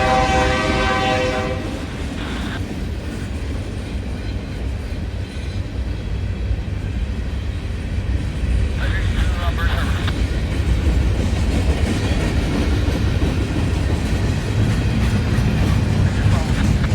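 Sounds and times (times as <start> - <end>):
locomotive air horn: 0.0 - 1.9
freight train rumbling by: 0.0 - 16.9.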